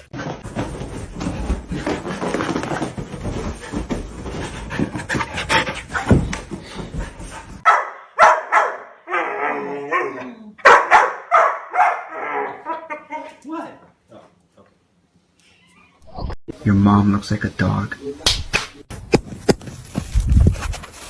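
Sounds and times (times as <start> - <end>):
dog barking: 7.6 - 12.6.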